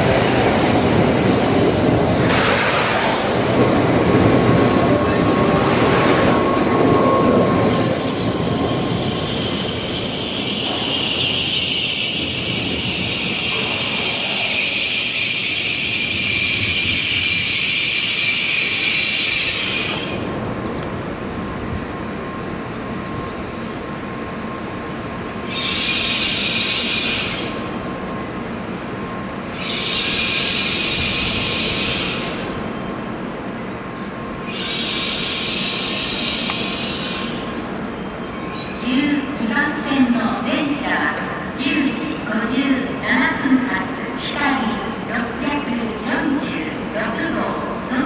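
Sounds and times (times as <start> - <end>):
train low hum: 0.0 - 48.0
loud high hiss: 8.1 - 20.3.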